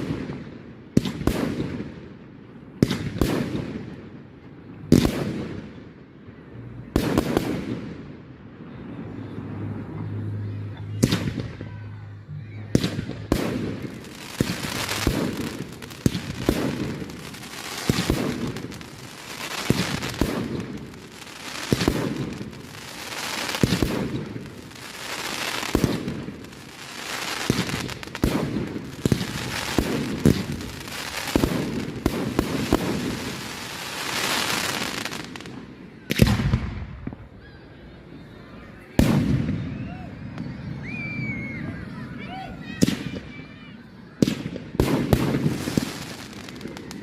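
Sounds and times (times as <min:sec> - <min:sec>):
firework bangs: 0:00.0 - 0:02.2, 0:02.8 - 0:04.2, 0:04.9 - 0:05.9, 0:06.9 - 0:08.2, 0:11.0 - 0:11.9, 0:12.6 - 0:37.4, 0:39.0 - 0:40.6, 0:44.2 - 0:47.0
crackling hiss of firework bursts: 0:12.8 - 0:37.2, 0:44.2 - 0:47.0.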